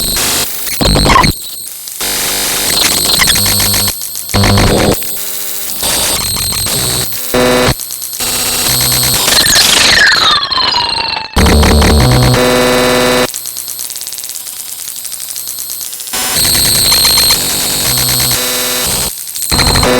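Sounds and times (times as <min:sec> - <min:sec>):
hissing static: 0:00.0 - 0:09.7, 0:11.4 - 0:19.9
buzzy electronic tones: 0:02.6 - 0:05.0, 0:05.8 - 0:10.2, 0:11.4 - 0:13.3, 0:16.4 - 0:19.9.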